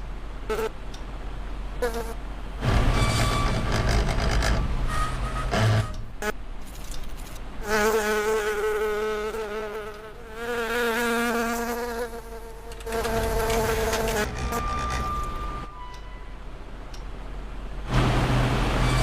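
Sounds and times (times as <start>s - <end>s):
flying insect buzzing: 1.8s - 2.2s, 6.2s - 14.6s.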